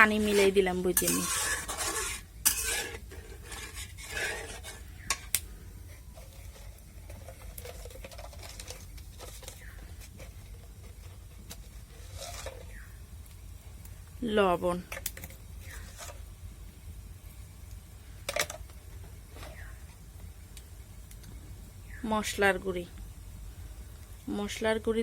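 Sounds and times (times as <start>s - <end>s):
spoon scraping and knocking a pan: 0.0s - 5.4s, 6.0s - 12.9s
low steady hum: 0.0s - 25.0s.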